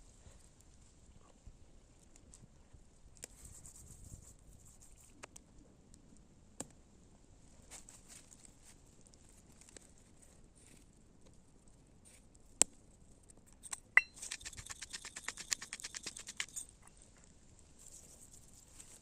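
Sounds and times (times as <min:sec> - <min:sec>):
rapid small clicks: 0:13.4 - 0:16.7
tap with metallic ring: 0:13.7 - 0:14.3.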